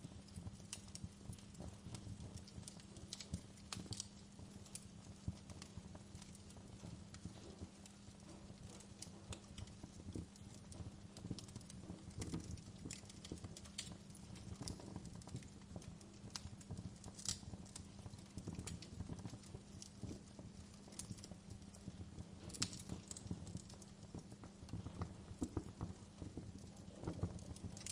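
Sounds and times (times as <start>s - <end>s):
wood fire crackling: 0.0s - 27.9s.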